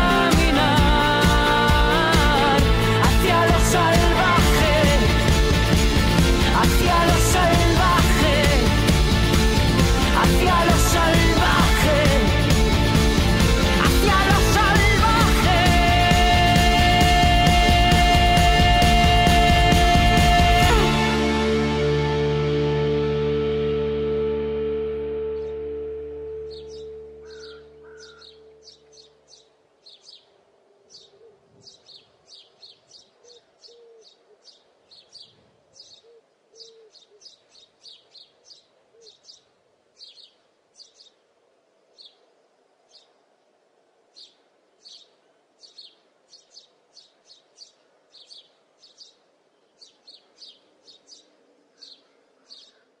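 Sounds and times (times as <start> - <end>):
music: 0.0 - 28.2
bird chirping: 25.2 - 41.2, 41.9 - 42.3, 44.1 - 53.0
soft low bird calls: 26.4 - 41.3, 44.1 - 53.0.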